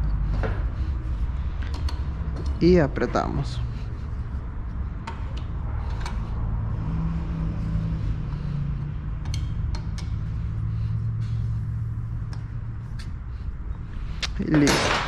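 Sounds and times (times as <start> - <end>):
low hum: 0.0 - 14.9
metal clicks of hand tools: 1.6 - 2.6, 9.2 - 10.2.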